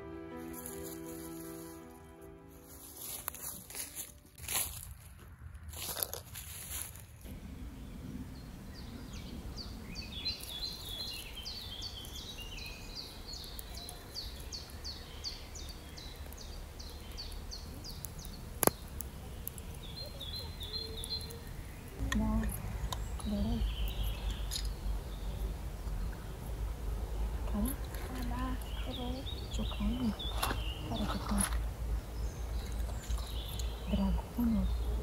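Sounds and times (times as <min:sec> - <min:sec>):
bird singing high notes: 0:00.0 - 0:04.1
low steady rumble: 0:00.0 - 0:12.8, 0:21.4 - 0:35.0.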